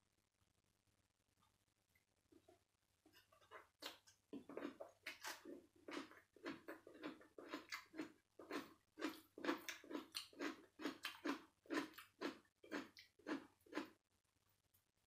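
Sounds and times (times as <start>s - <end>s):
person chewing food: 3.1s - 14.0s.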